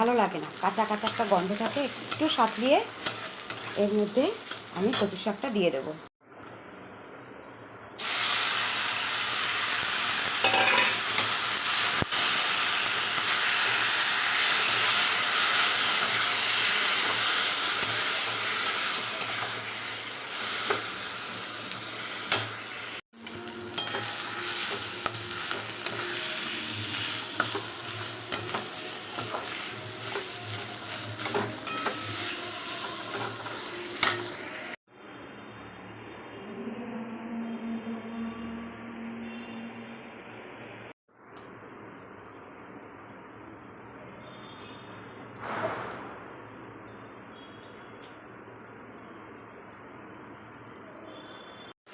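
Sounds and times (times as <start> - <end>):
food sizzling in oil: 0.0 - 6.1, 8.0 - 34.8
spatula scraping a pan: 3.0 - 3.9.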